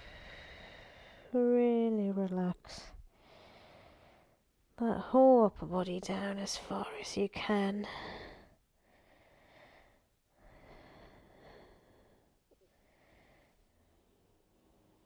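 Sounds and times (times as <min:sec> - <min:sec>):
soft slow breathing: 0:00.0 - 0:01.4, 0:03.1 - 0:04.5, 0:07.8 - 0:15.0.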